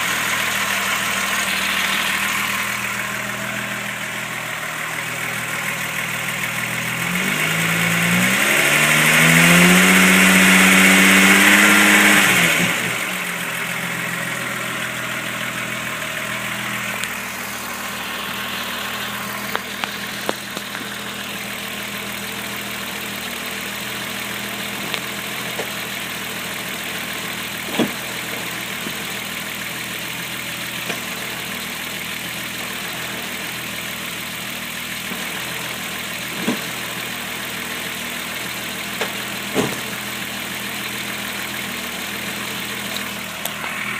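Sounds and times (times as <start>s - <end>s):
car engine revving and idling: 0.0s - 43.9s.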